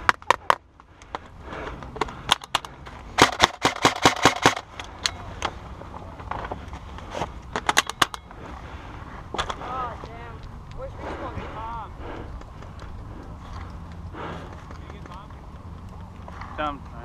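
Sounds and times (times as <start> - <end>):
airsoft guns firing: 3.2 - 5.1.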